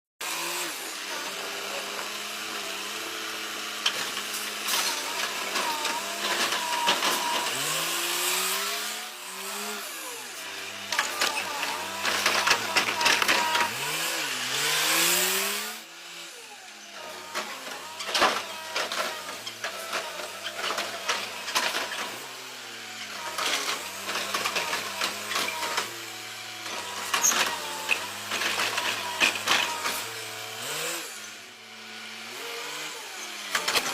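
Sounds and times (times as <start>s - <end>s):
garbage truck engine running: 9.8s - 15.2s, 16.6s - 31.8s.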